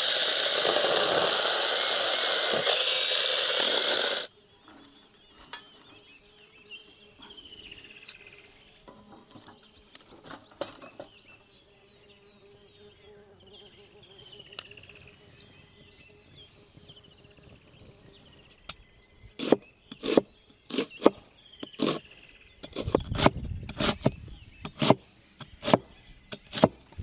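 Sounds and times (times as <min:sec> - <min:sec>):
loud steady hiss: 0:00.0 - 0:04.3
birds chirping: 0:04.1 - 0:27.0.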